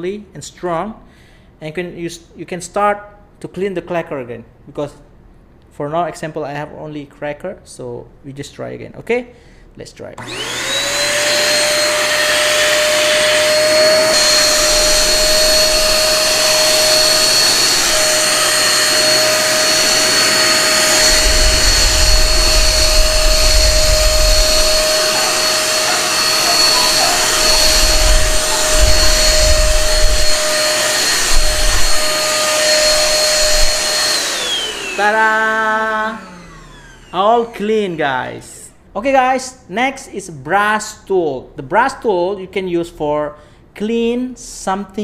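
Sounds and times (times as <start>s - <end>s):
vacuum cleaner whine: 10.2s - 38.0s.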